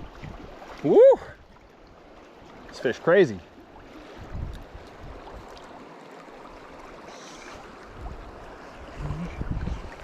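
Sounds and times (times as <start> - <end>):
river current rushing: 0.0 - 10.0.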